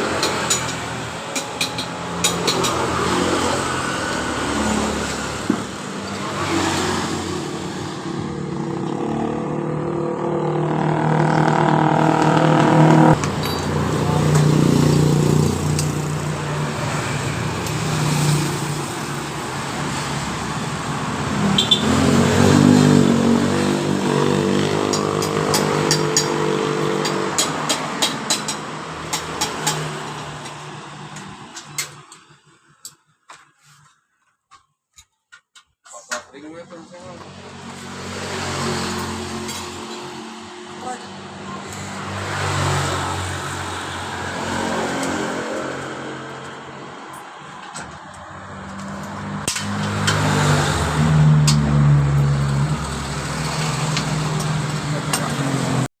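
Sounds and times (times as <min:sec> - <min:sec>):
scooter engine revving: 0:00.0 - 0:31.9, 0:37.0 - 0:55.9
scooter engine running: 0:07.0 - 0:17.8.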